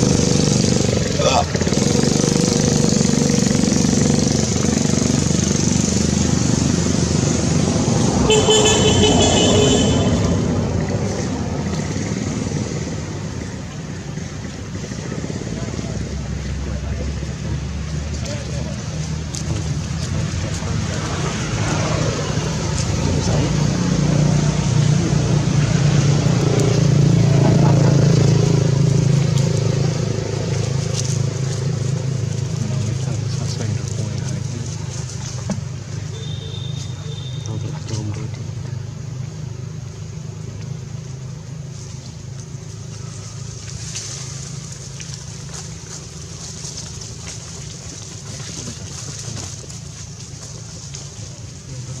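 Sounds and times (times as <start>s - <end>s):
vehicle engine running: 0.0s - 52.0s
vehicle horn: 8.2s - 10.5s, 36.1s - 37.6s.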